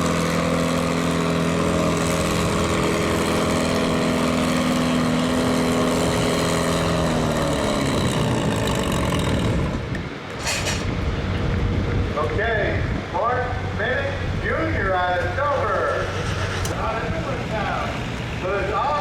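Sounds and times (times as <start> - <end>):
tractor engine running hard: 0.0 - 19.0
short sharp hiss: 10.4 - 10.9.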